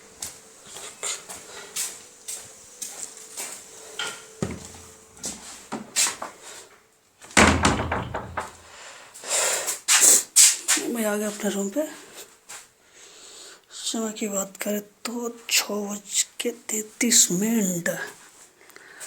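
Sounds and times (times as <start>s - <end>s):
footsteps with scuffs: 0.0s - 6.8s
rattling clatter: 7.4s - 8.7s.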